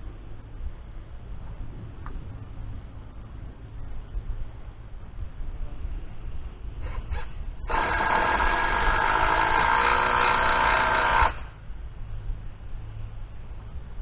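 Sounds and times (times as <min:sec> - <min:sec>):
power tool whining: 0:06.9 - 0:11.5.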